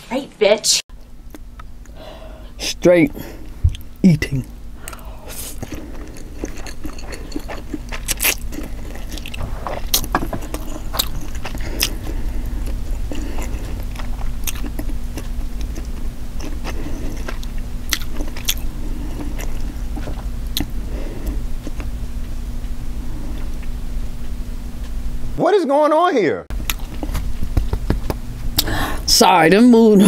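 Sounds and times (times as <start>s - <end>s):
low steady hum: 0.0s - 30.0s
person chewing noodles: 4.8s - 22.0s, 26.6s - 27.6s.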